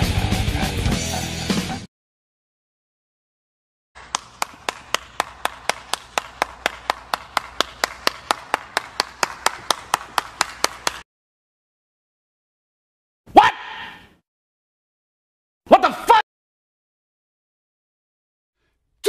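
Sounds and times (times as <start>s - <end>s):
person clapping hands: 4.0s - 11.0s.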